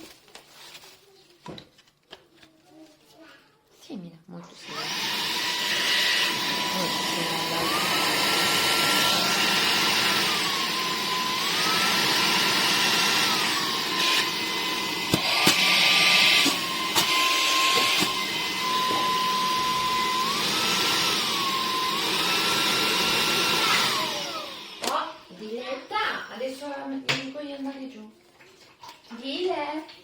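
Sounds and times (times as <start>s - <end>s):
handheld vacuum cleaner running: 4.6s - 25.8s.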